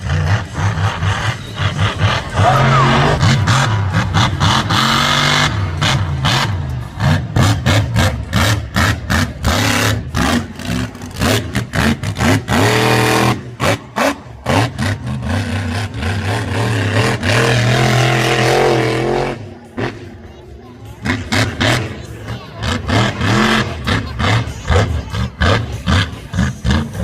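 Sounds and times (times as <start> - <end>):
truck engine revving: 0.0 - 27.0.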